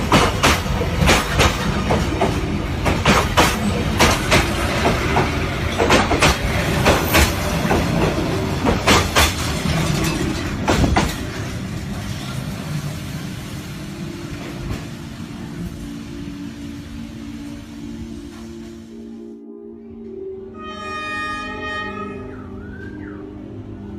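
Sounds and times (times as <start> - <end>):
train wheels clacking over rail joints: 0.0 - 12.4
train rumble: 0.0 - 19.3.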